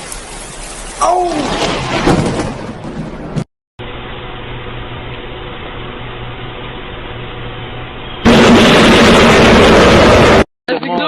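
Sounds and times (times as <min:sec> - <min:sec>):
loud distorted thunderclap: 0:01.4 - 0:03.4, 0:08.2 - 0:10.5.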